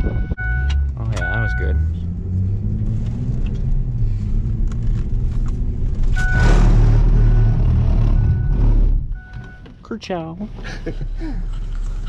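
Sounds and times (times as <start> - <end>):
car engine rumble: 0.0 - 12.0
rushing noise: 6.1 - 9.0.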